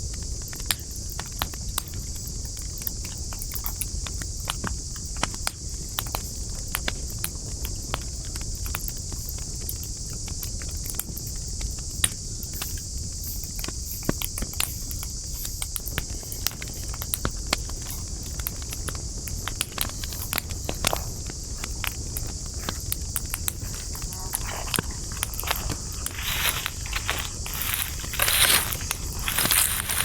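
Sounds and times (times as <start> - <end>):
campfire crackling and popping: 0.0 - 30.0
high-pitched hiss: 10.9 - 30.0.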